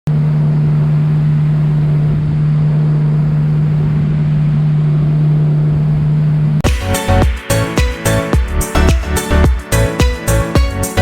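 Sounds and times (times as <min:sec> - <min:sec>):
engine humming steadily: 0:00.1 - 0:11.0
music: 0:06.6 - 0:11.0.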